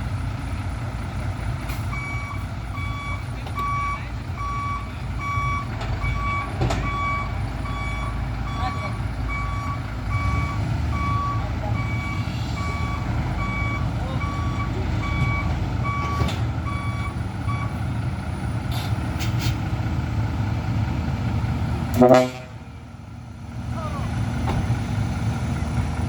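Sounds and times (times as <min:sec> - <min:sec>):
low engine rumble: 0:00.0 - 0:26.0
reversing alarm beeping: 0:01.9 - 0:17.8.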